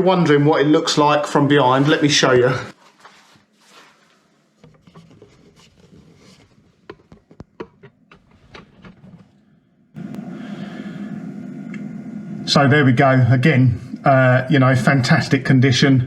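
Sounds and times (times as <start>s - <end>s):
objects being handled: 2.8s - 9.4s
steady hum: 8.1s - 16.0s.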